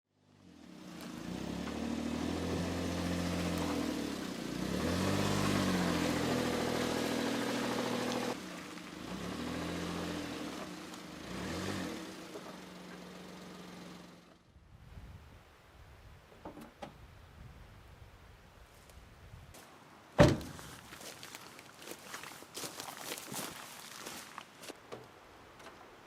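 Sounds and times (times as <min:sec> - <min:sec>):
small truck engine driving: 0:00.2 - 0:14.6.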